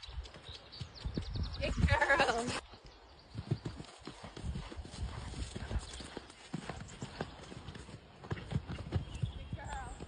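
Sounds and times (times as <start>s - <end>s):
horse hoofbeats: 3.3s - 10.0s.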